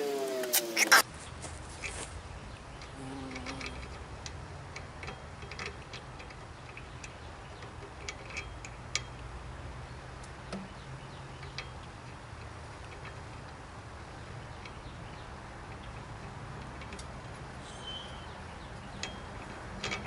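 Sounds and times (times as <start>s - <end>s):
steady low hum: 0.0s - 7.5s
hand tools clicking and tapping: 2.5s - 9.3s.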